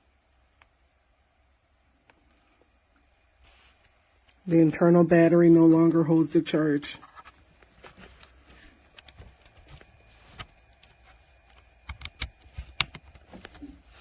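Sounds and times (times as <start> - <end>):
speaker and cable handled clicks: 7.2 - 13.7.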